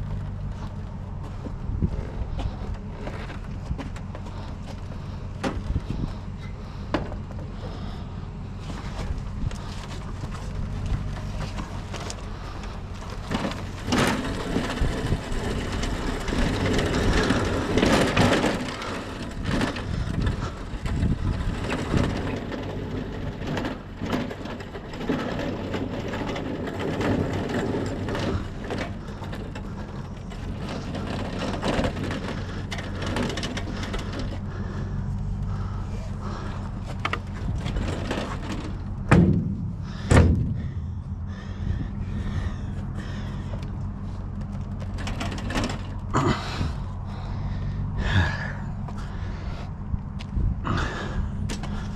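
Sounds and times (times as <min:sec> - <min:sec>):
steady low hum: 0:00.0 - 0:51.9
scrap items knocking and clattering: 0:08.6 - 0:34.8, 0:35.5 - 0:40.8, 0:44.3 - 0:46.8
loud bangs: 0:39.0 - 0:41.0.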